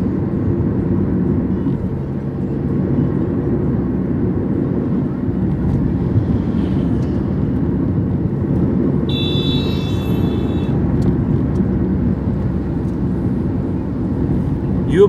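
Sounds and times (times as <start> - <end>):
car road and engine noise: 0.0 - 15.0
vehicle horn: 9.1 - 10.8.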